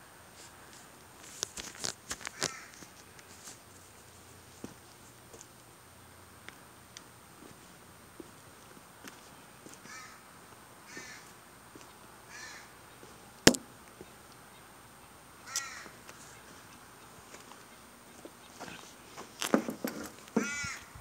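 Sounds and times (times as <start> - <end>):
crow cawing: 2.3 - 3.0, 9.8 - 11.4, 12.3 - 12.8, 15.4 - 16.0, 20.4 - 20.9.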